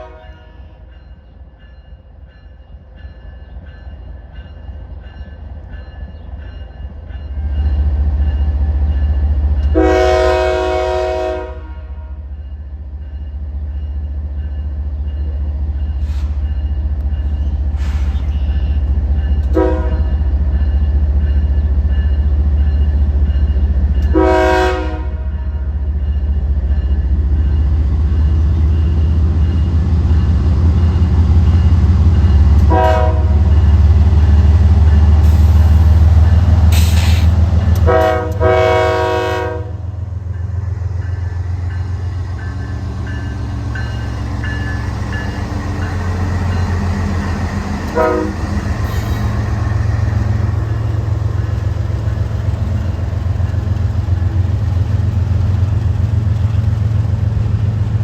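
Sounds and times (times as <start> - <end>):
locomotive horn blasts: 0.0 - 0.7, 9.7 - 12.2, 19.5 - 20.2, 24.1 - 25.7, 32.6 - 33.6, 37.7 - 40.0, 47.8 - 49.6
train rumbling past: 0.0 - 58.0.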